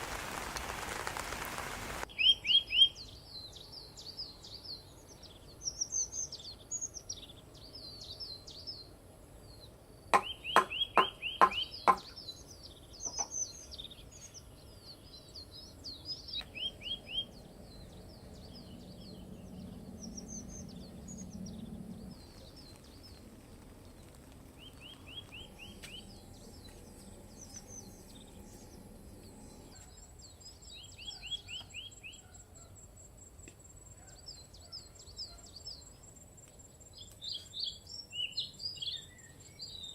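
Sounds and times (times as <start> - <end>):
birds chirping and singing: 9.5 - 32.7, 36.9 - 39.9
sharp clicks or knocks: 10.2 - 12.1.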